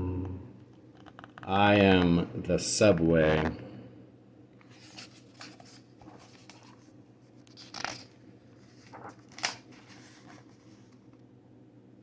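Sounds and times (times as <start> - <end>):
faint low hum: 0.0 - 12.0
book pages turning: 4.6 - 11.1.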